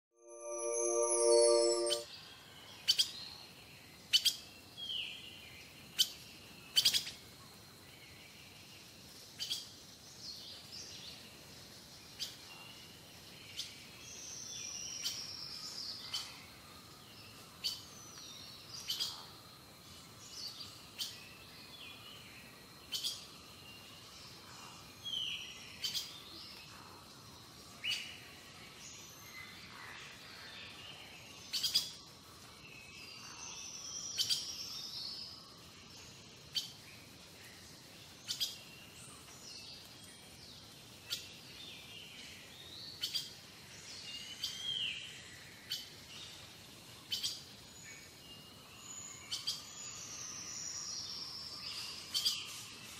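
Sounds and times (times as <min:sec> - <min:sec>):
small birds chirping: 0:20.0 - 0:52.9.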